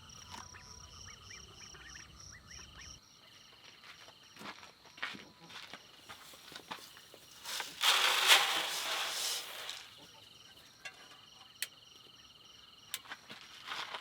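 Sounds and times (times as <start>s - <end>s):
rustling hissing noise: 6.0s - 10.1s.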